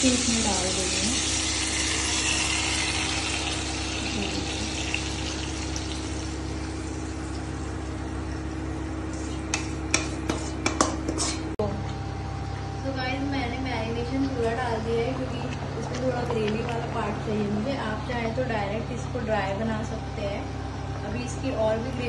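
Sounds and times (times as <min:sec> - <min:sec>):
chicken sizzling in frying pan: 0:00.0 - 0:11.0
utensils knocking against pan: 0:09.5 - 0:11.4.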